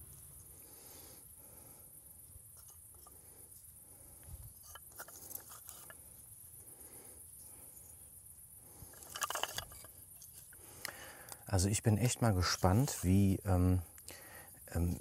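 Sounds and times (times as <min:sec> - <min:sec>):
crickets chirping: 0:00.0 - 0:15.0
rustling: 0:02.5 - 0:06.2, 0:08.6 - 0:11.4.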